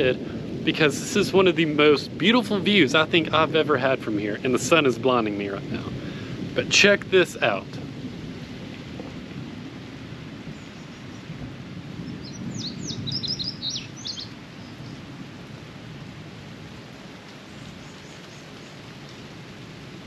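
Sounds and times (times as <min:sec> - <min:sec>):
steady low rumble: 0:00.0 - 0:14.1
bird chirping: 0:12.0 - 0:15.0.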